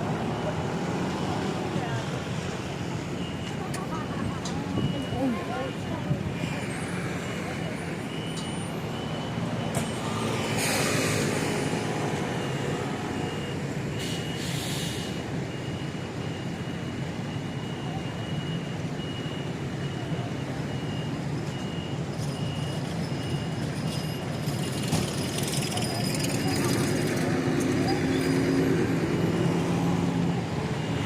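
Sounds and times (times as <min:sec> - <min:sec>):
traffic hum: 0:00.0 - 0:31.0
high electronic beep: 0:04.6 - 0:11.7
short hisses: 0:14.0 - 0:15.2.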